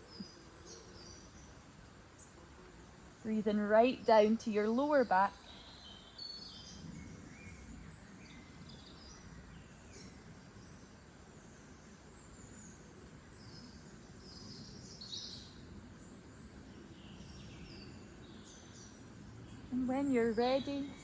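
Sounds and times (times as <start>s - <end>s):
birds singing: 0.0s - 21.0s
faint outdoor hiss: 0.0s - 21.0s.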